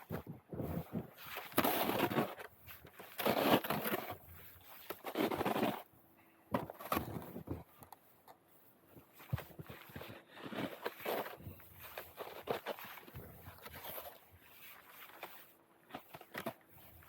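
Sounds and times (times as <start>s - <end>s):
crunching in snow: 0.0s - 5.9s, 9.0s - 17.0s
roof rake scraping snow: 0.0s - 5.9s, 9.2s - 17.0s.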